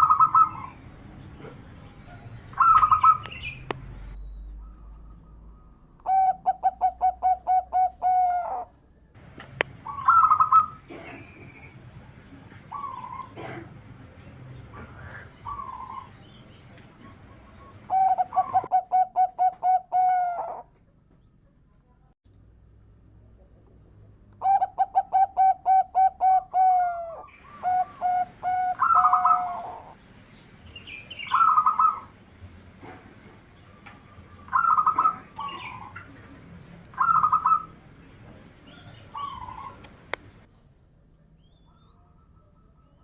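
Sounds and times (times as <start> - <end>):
dove cooing: 0.0 - 0.8, 2.6 - 3.4, 6.0 - 8.7, 9.8 - 11.7, 12.7 - 13.8, 14.8 - 16.2, 16.9 - 20.7, 24.4 - 30.0, 31.2 - 32.1, 33.7 - 36.2, 36.9 - 37.8, 38.6 - 40.1.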